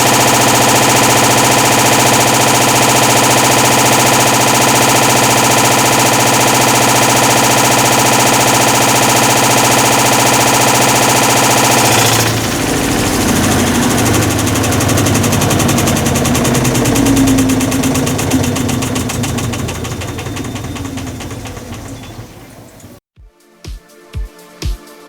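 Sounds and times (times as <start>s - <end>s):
washing machine mechanical noise: 0.0s - 23.0s
rapid even knocking: 10.9s - 23.0s.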